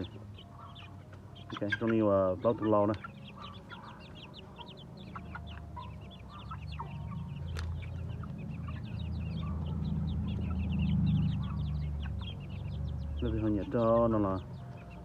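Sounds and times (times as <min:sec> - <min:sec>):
chickens clucking: 0:00.0 - 0:15.0
chicks peeping: 0:00.0 - 0:15.0.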